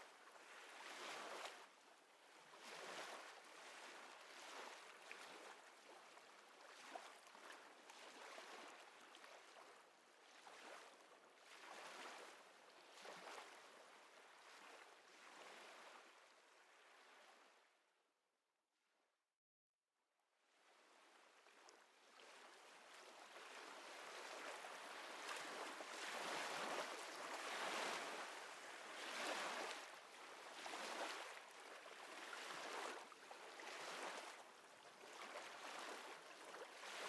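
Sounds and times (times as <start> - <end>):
small waves lapping: 22.0 - 37.0.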